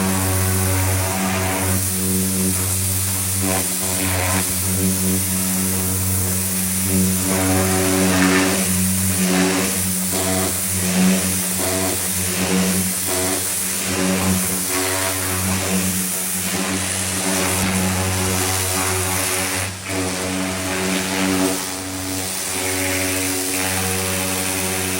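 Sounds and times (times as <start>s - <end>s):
pressure washer motor hum: 0.0s - 24.9s
water jet spraying hiss: 0.0s - 24.9s.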